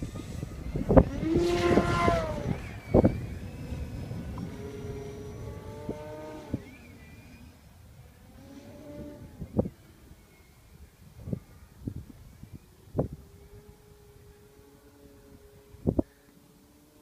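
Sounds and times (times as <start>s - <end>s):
wind thumping on microphone: 0.0s - 6.8s, 11.1s - 13.3s, 15.8s - 16.1s
model plane motor whining: 0.0s - 17.0s.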